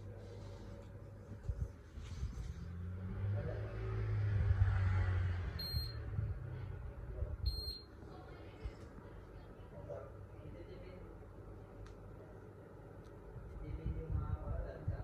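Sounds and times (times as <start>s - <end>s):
air conditioner hum: 0.0s - 15.0s
air conditioner beep: 5.6s - 6.3s, 7.4s - 8.0s.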